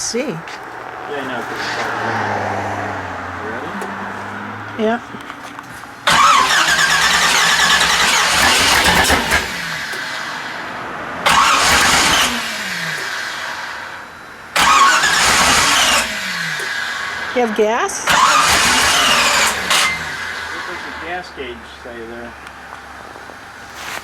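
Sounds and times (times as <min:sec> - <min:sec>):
engine starter cranking: 0:05.2 - 0:10.5, 0:11.2 - 0:21.1.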